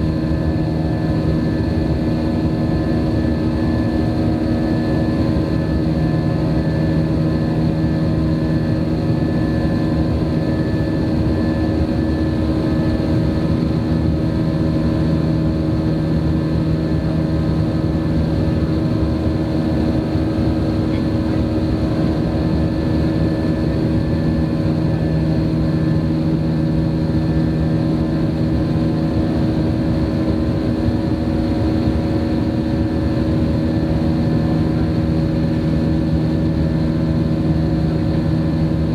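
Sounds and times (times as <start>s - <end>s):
jet engine drone in cabin: 0.0s - 38.9s.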